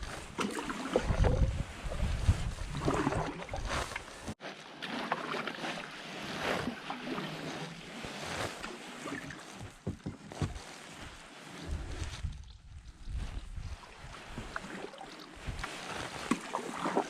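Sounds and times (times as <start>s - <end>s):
paddle strokes swishing through water: 0.0s - 17.0s.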